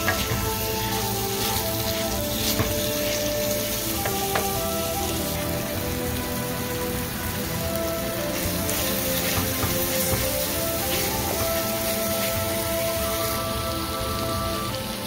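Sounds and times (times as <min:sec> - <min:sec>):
soft background music: 0:00.0 - 0:15.0
vegetables sizzling in hot oil: 0:00.0 - 0:15.0.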